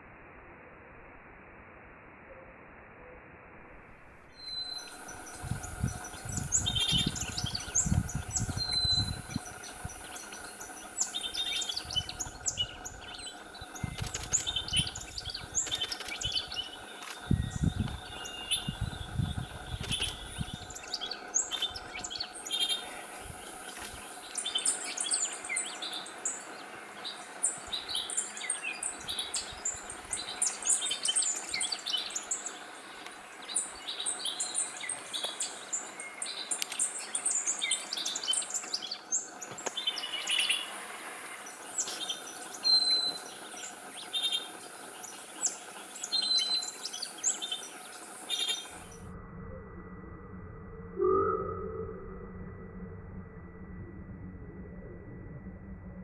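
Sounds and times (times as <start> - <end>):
birds chirping: 4.4 - 49.2
low rumbling bursts: 48.7 - 56.0.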